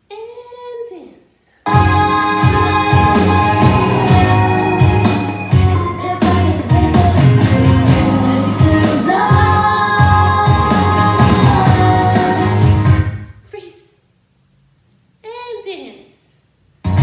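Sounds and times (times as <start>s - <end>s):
song with singing and instruments: 1.7s - 13.3s.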